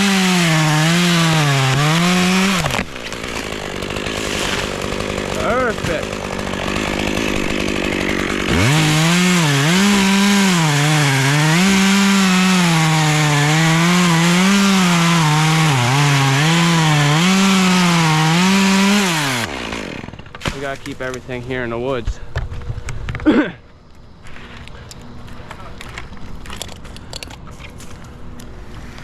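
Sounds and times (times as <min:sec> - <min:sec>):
chainsaw cutting wood: 0:00.0 - 0:21.3.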